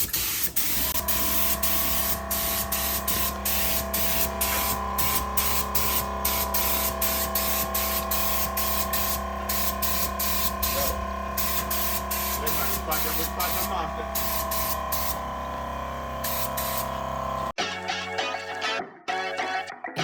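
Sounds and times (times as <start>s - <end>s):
paint spray gun hissing: 0.0s - 17.6s
background music: 17.6s - 20.0s.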